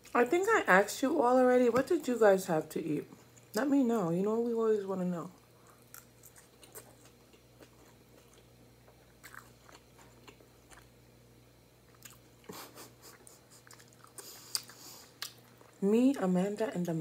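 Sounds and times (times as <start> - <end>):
chewing and crunching food: 5.3 - 11.1, 11.8 - 16.9.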